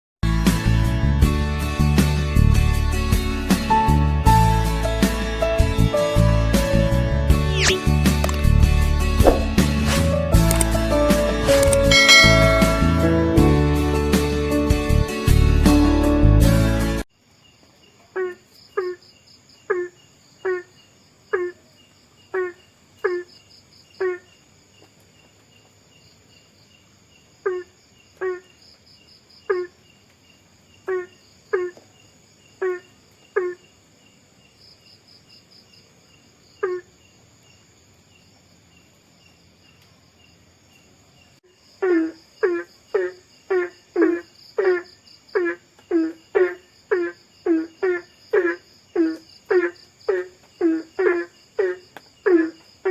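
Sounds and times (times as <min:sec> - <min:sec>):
crickets trilling: 0:17.1 - 0:52.9.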